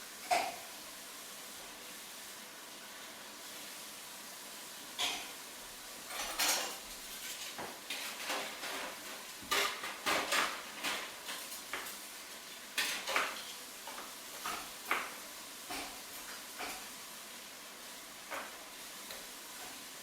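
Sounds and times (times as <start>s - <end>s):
faint steady hiss: 0.0s - 20.0s
dishes and cutlery clinking: 0.2s - 0.6s, 5.0s - 5.4s, 6.1s - 12.0s, 12.8s - 16.9s.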